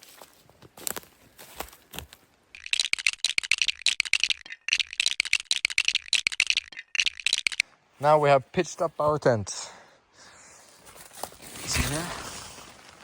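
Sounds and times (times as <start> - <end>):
tent poles clicking and rattling: 2.0 - 7.6.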